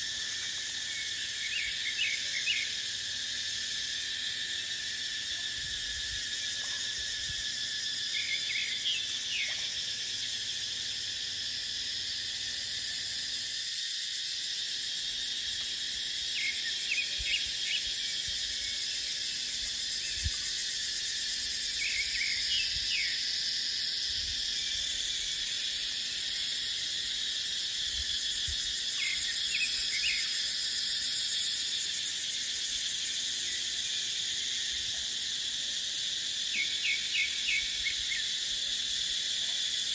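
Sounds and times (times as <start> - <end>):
cicadas droning: 0.0 - 39.9.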